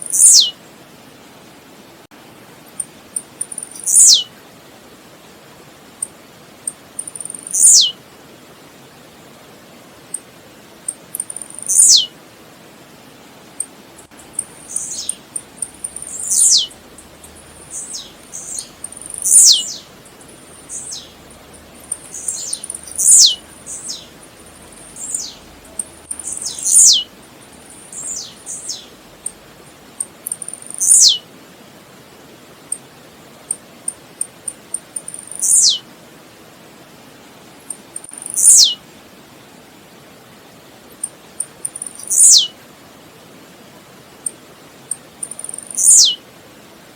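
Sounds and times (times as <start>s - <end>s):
bird singing: 0.0s - 0.6s, 3.4s - 4.3s, 7.0s - 8.0s, 11.1s - 12.1s, 14.0s - 29.4s, 30.0s - 31.2s, 34.5s - 35.8s, 38.0s - 38.8s, 41.4s - 42.5s, 45.2s - 46.2s.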